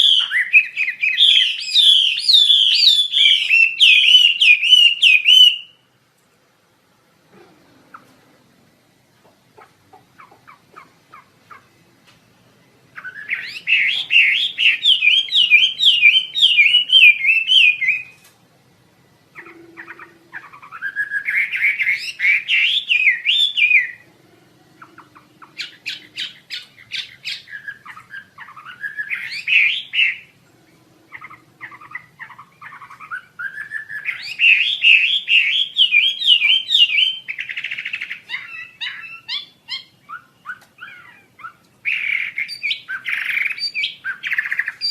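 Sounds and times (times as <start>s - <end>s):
songbird warbling trills: 19.3s - 24.1s.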